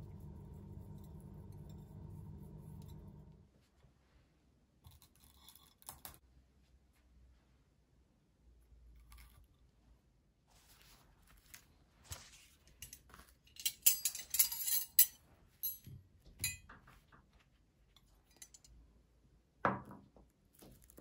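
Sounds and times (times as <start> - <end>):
dishes and cutlery clinking: 12.8 - 16.7.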